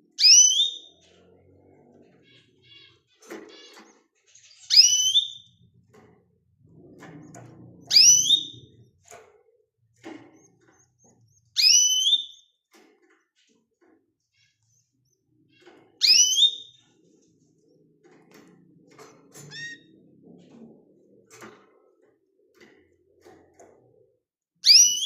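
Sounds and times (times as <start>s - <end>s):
bird chirps and clicks: 0.1s - 25.0s
bird whistled calls: 4.7s - 5.5s, 11.6s - 12.4s, 16.0s - 16.8s, 24.6s - 25.0s.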